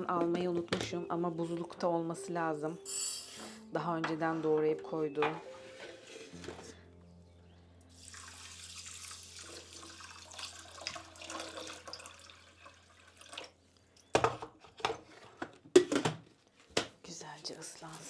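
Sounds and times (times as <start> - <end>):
tap water running into bowl: 8.0 - 13.6.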